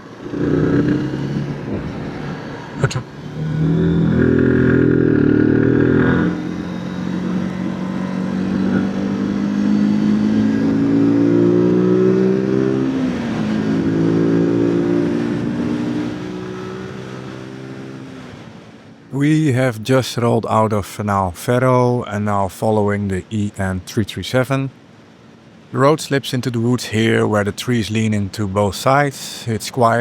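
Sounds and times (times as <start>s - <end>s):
motorcycle engine accelerating: 0.0s - 18.7s.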